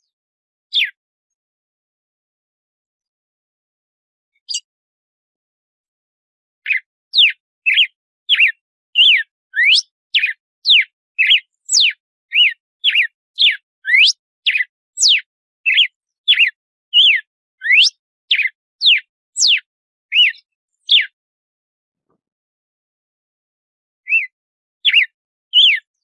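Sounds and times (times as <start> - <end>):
bird whistling song: 0.7 - 1.0, 4.4 - 4.7, 6.6 - 21.2, 24.0 - 26.0.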